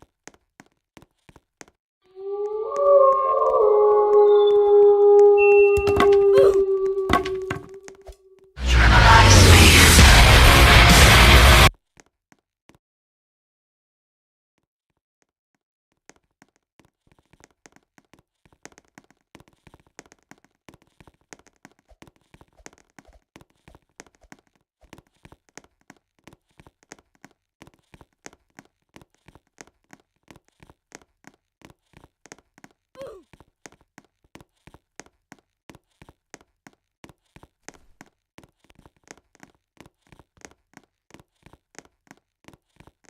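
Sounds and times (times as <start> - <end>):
brief squeak: 5.4 - 8.2.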